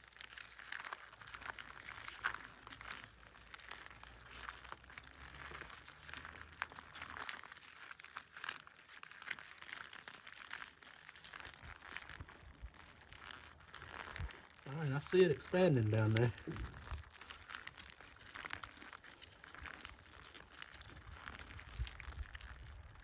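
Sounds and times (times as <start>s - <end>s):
plastic pouch crinkling: 0.0s - 23.0s.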